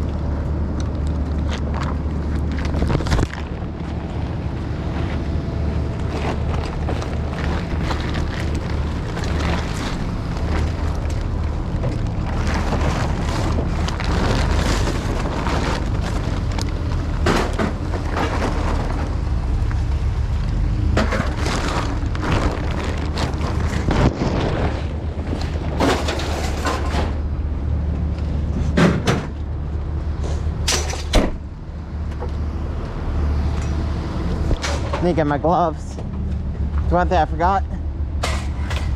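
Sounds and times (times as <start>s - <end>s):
low rumble: 0.0s - 38.9s
scrap metal knocks and bangs: 23.7s - 27.2s, 38.2s - 38.9s.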